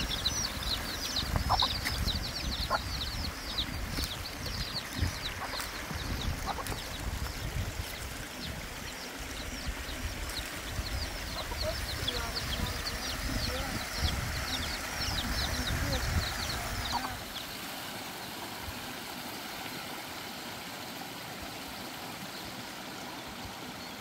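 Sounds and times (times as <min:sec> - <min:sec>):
lower bird calls: 0:00.0 - 0:17.6
birds chirping: 0:00.0 - 0:24.0.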